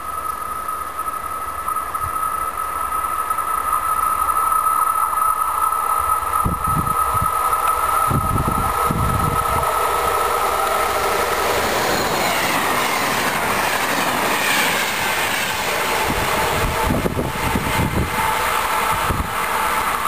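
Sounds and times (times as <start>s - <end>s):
electric locomotive whine: 0.0s - 20.0s
train wheels clattering on rails: 0.2s - 20.0s
wheel squealing: 10.8s - 18.4s.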